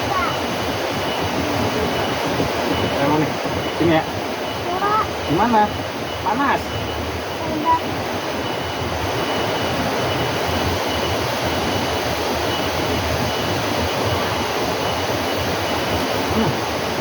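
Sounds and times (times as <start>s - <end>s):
faint high tone: 0.0s - 0.5s
steady rushing noise: 0.0s - 17.0s.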